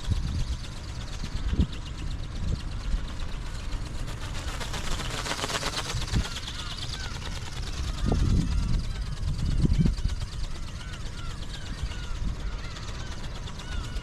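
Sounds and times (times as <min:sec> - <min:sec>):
small motor buzzing: 0:00.0 - 0:14.0
wind buffeting microphone: 0:00.0 - 0:14.0
gull calls: 0:05.6 - 0:14.0.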